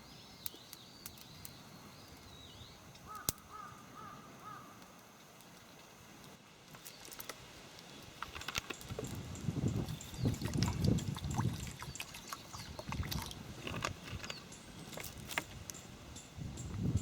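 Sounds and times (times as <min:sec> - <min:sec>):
faint background hiss: 0:00.0 - 0:17.0
wild bird calling: 0:03.0 - 0:04.8.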